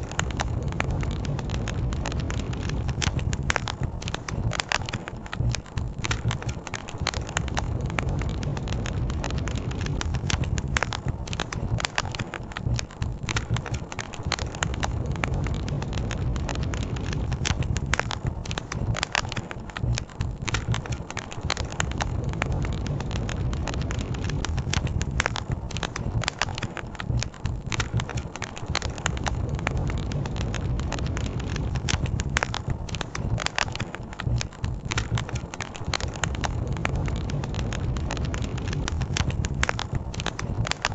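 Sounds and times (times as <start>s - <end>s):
burning wood snapping and popping: 0.0s - 40.9s
campfire crackling: 0.0s - 40.9s.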